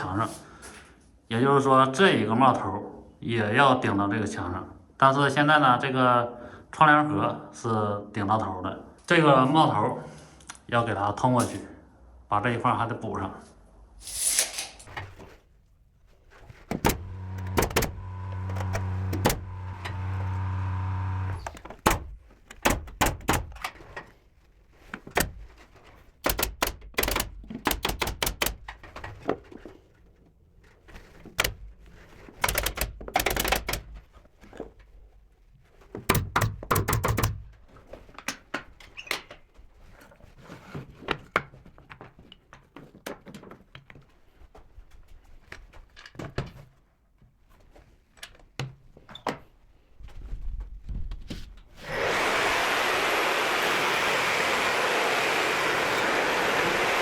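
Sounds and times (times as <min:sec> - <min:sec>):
sharp knocks and clicks: 0:16.4 - 0:20.5, 0:21.2 - 0:24.1, 0:25.0 - 0:25.6, 0:26.2 - 0:29.7, 0:31.2 - 0:34.2, 0:36.0 - 0:37.6
power tool motor running: 0:16.7 - 0:21.9, 0:51.8 - 0:57.0.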